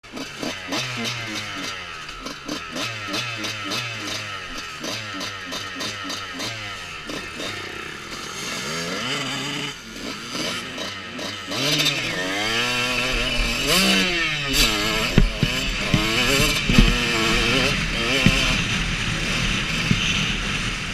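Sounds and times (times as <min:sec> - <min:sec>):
motocross bike engine revving: 0:00.0 - 0:20.9
sharp thumps: 0:13.0 - 0:20.4.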